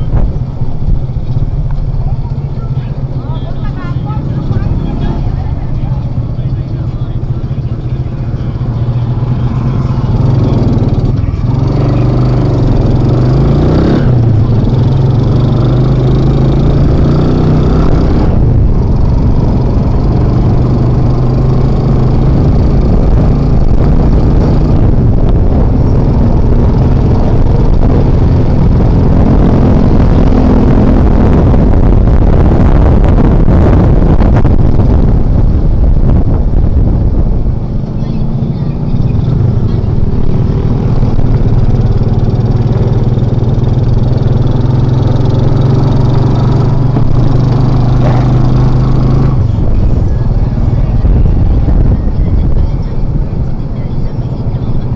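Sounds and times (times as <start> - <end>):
motorcycle engine running: 0.0 - 54.9
road noise: 0.0 - 54.9.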